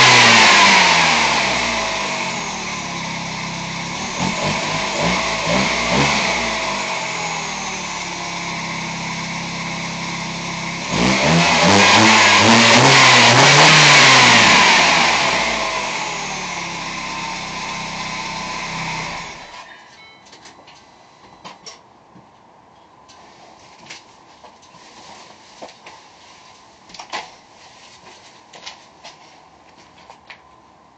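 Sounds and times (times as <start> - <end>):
car engine revving: 0.0 - 19.6.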